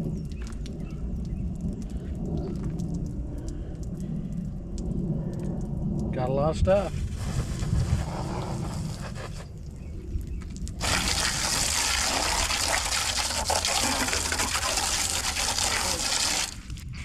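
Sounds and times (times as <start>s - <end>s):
water rushing: 10.8s - 16.7s.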